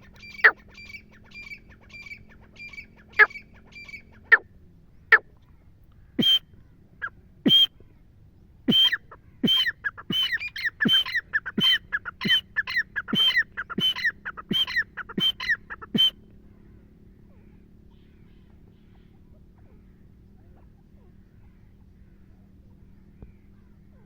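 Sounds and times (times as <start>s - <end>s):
francolin calling: 0.0s - 4.4s, 6.0s - 6.4s, 7.0s - 7.7s, 8.7s - 16.2s.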